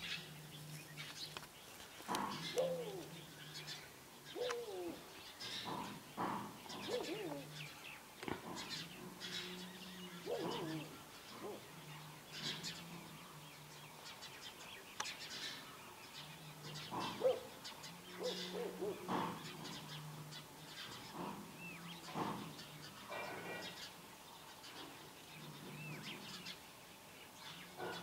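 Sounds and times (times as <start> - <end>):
low drawn-out bird hooting: 2.4 - 3.3, 4.3 - 5.2, 9.3 - 11.7, 17.0 - 19.1.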